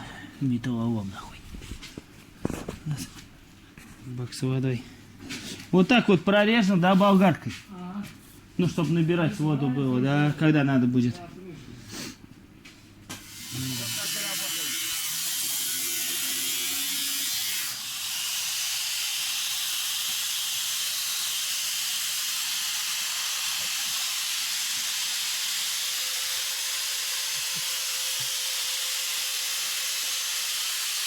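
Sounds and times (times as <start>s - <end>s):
angle grinder cutting metal: 13.1s - 31.0s.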